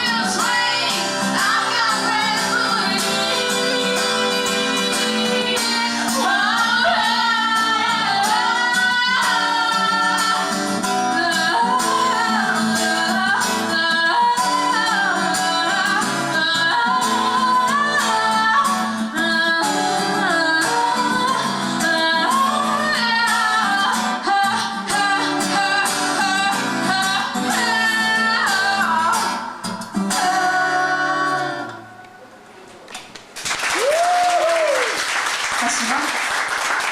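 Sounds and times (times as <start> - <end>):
woman singing: 0.0 - 31.9
guitar: 0.0 - 33.3.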